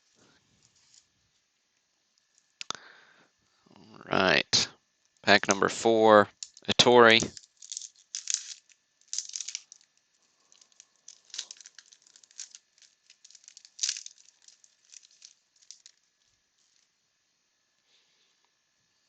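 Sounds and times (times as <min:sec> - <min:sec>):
wax paper wrapper crinkling and tearing: 0:06.3 - 0:16.9.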